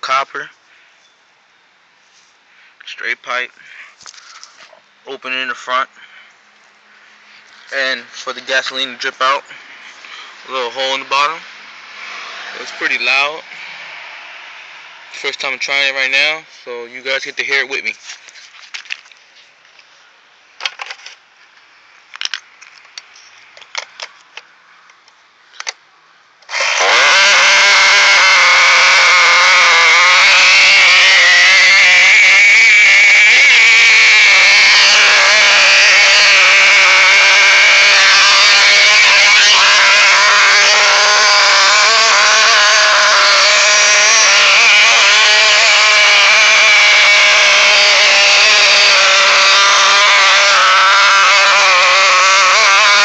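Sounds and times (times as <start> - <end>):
small gasoline engine running: 26.5 - 53.0.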